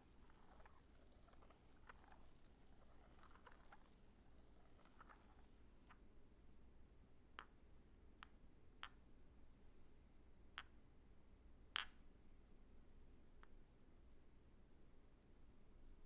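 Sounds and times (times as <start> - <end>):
glass clinks: 0.0 - 6.0.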